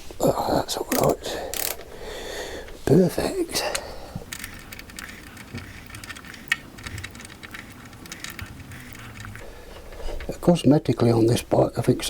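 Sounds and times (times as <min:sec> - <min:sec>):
metal parts and tools clicking: 0:00.9 - 0:01.9, 0:03.7 - 0:10.4.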